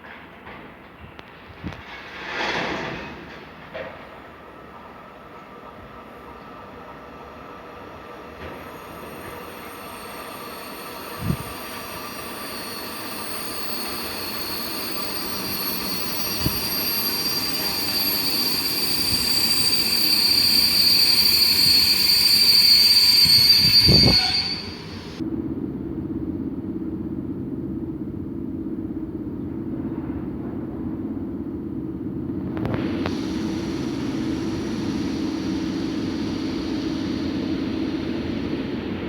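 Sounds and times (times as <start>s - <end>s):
passenger train approaching: 0.0s - 39.0s
wheels squealing on rails: 5.3s - 25.2s.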